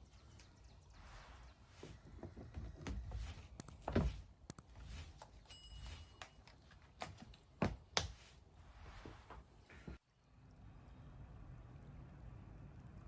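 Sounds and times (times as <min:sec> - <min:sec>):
handling taps and knocks: 0:01.8 - 0:08.2.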